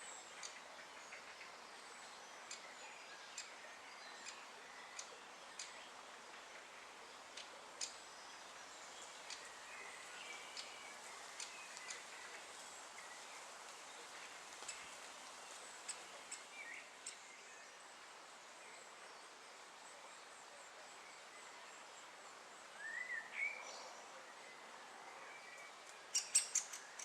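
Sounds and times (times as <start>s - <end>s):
steady outdoor hiss: 0.0s - 27.0s
woodpecker kik calls: 26.1s - 27.0s.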